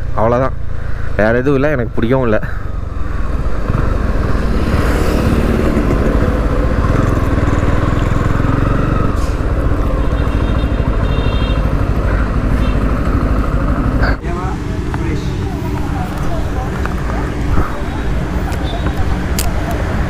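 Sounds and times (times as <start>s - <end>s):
motorcycle engine at low revs: 2.6s - 14.2s.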